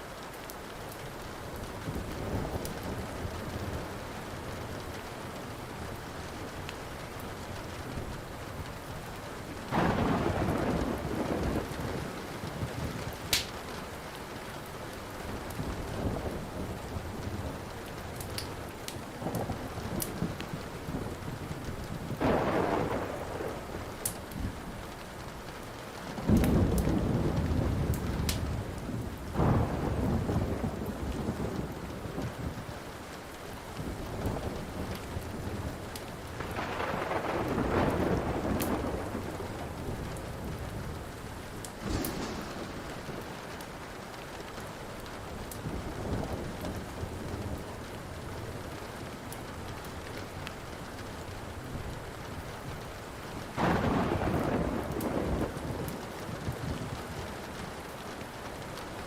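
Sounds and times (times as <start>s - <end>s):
steady rain: 0.0s - 59.0s
low rumbling thunder: 9.4s - 13.7s, 15.2s - 25.2s, 26.0s - 32.7s, 33.8s - 49.8s, 50.8s - 58.0s
wood fire crackling and popping: 10.6s - 14.0s, 16.7s - 29.2s, 29.8s - 45.7s.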